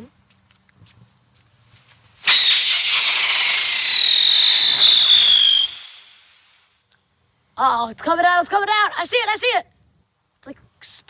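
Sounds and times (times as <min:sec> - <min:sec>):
whistling firework: 0:02.2 - 0:06.6.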